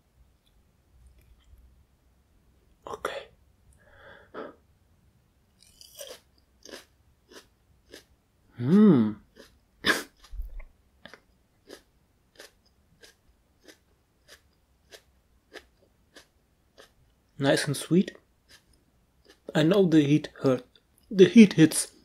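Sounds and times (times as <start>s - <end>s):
person coughing: 9.8s - 10.2s.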